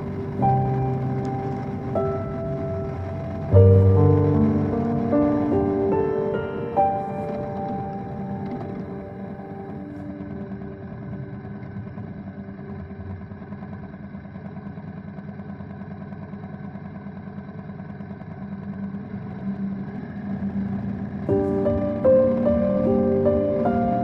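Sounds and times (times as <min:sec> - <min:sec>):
road and wind noise: 0:00.0 - 0:11.2
motorcycle engine running: 0:00.0 - 0:24.0.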